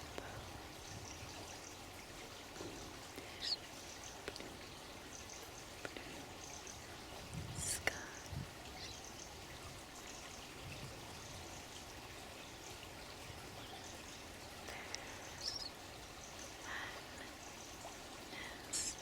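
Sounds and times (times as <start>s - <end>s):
running water trickling: 0.0s - 19.0s
faint high bird chirps: 15.2s - 15.8s.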